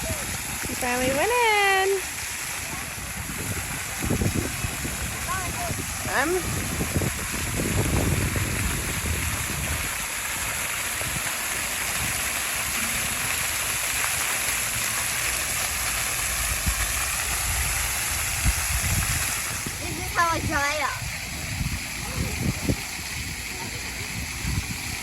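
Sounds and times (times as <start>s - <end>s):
fountains spraying water: 0.0s - 25.0s.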